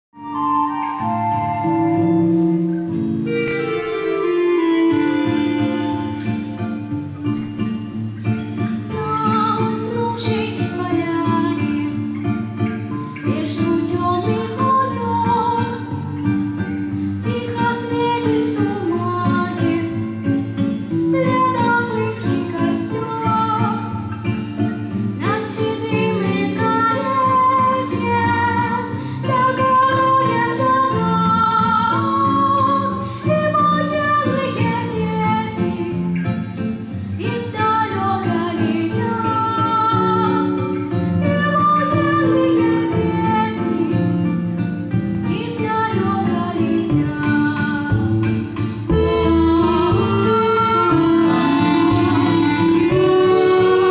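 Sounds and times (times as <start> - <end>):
guitar accompaniment: 0.2 - 53.9
young female voice singing: 8.9 - 11.9, 13.2 - 15.9, 17.2 - 20.0, 21.1 - 24.0, 25.2 - 36.0, 37.2 - 40.6, 41.2 - 44.2, 45.3 - 48.3.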